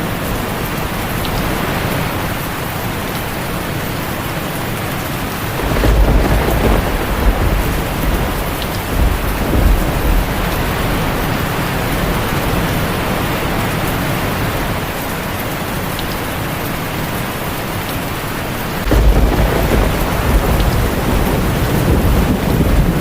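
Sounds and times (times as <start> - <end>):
heavy rain on a tin roof: 0.0 - 23.0
thunder rumbling: 5.5 - 15.0, 18.7 - 23.0.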